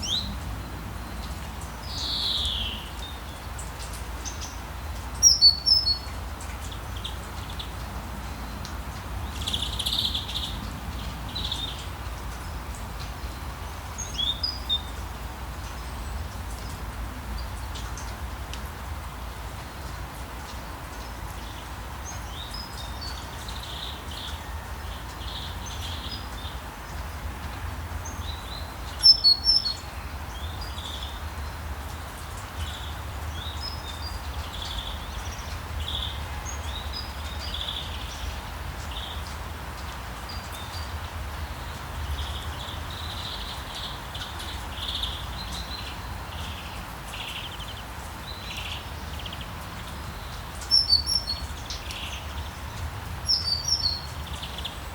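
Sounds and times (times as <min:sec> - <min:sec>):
steady rain: 0:00.0 - 0:54.9
birds chirping: 0:40.2 - 0:54.9.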